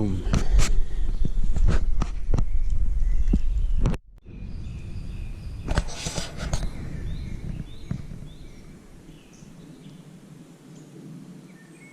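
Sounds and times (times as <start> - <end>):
small birds chirping: 0.0 - 1.6, 2.2 - 11.9
brief rustle: 5.6 - 6.8.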